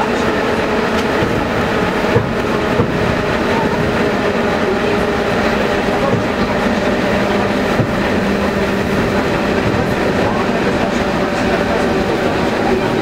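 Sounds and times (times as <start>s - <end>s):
train wheels rumbling on rail: 0.0s - 13.0s
wheel knocks: 0.9s - 11.9s.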